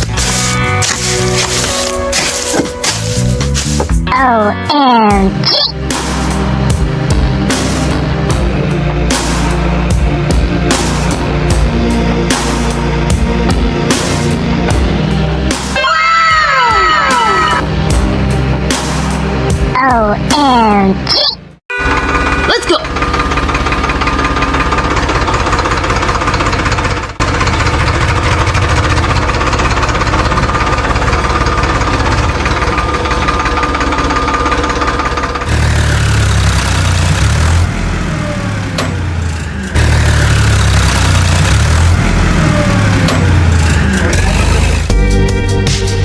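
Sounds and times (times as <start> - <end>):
heavy electronic bass music: 0.0 - 21.6, 39.8 - 46.0
small tractor engine idling: 21.1 - 45.0.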